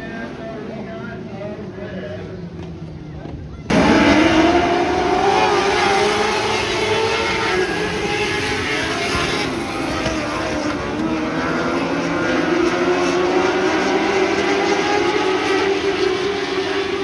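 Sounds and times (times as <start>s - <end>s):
sprint car engines at high revs: 3.7s - 17.0s.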